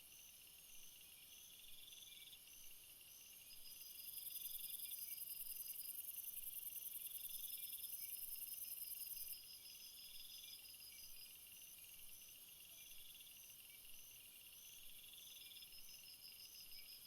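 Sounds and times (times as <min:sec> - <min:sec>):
high steady insect trill: 0:00.0 - 0:17.0.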